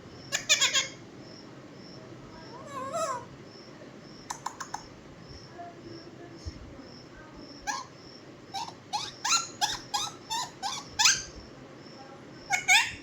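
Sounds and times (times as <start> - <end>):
parrot chirping: 0.3 - 1.0, 4.3 - 4.9, 7.6 - 11.4, 12.5 - 13.0.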